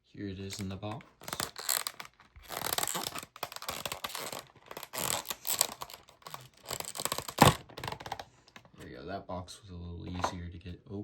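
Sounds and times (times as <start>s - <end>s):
box and packaging scratching: 0.4s - 8.7s.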